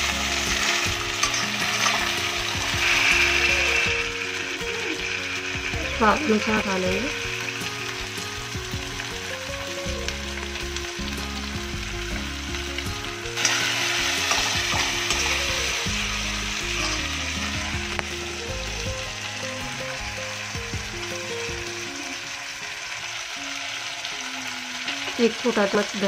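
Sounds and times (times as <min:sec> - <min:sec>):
ladle stirring in pan: 0:00.0 - 0:04.4, 0:13.4 - 0:15.9
vegetables sizzling in hot oil: 0:00.0 - 0:26.0.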